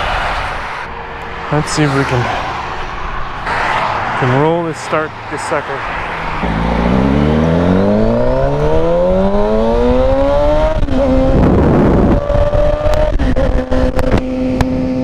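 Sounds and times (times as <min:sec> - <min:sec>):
motorcycle engine starting and running: 0:06.2 - 0:15.0.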